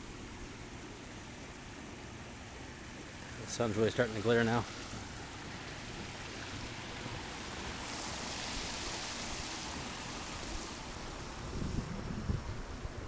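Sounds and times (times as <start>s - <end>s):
wind rushing hiss: 4.7s - 13.0s
wind buffeting microphone: 10.4s - 13.0s.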